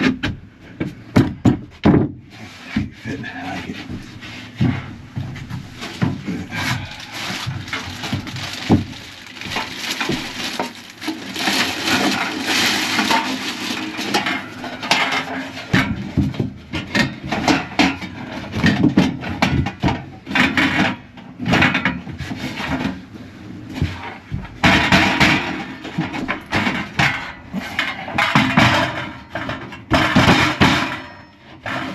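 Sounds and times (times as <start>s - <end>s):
wood clattering: 0.0s - 23.0s
wooden panels knocking and scraping: 0.0s - 23.1s, 23.7s - 31.9s.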